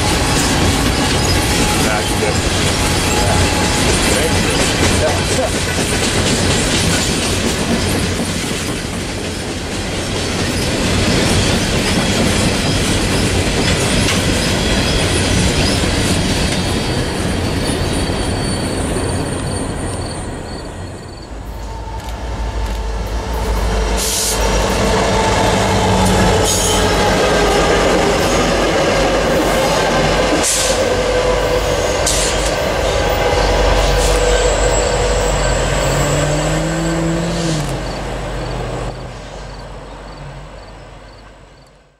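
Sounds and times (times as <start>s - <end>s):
high wheel squeal: 0.0s - 7.1s, 10.4s - 40.2s
wheels clattering over rail: 0.0s - 17.8s
diesel locomotives rumbling: 0.0s - 41.9s.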